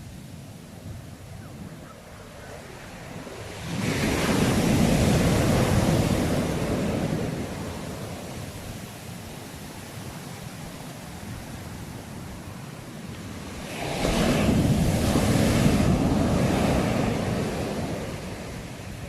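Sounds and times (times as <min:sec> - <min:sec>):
surf washing: 0:00.0 - 0:19.0
wave breaking: 0:13.5 - 0:18.8.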